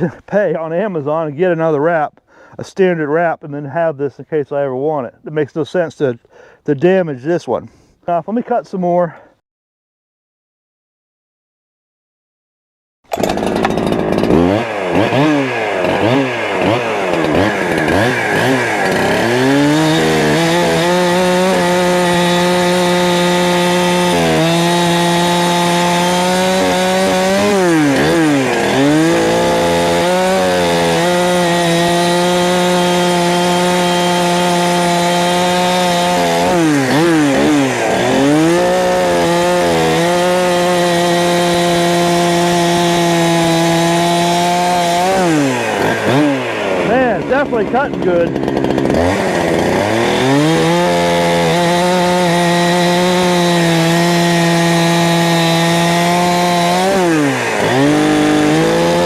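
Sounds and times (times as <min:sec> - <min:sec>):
chainsaw cutting firewood: 0:00.0 - 0:02.5, 0:13.1 - 0:59.0
chainsaw throttle blipping: 0:13.1 - 0:59.0.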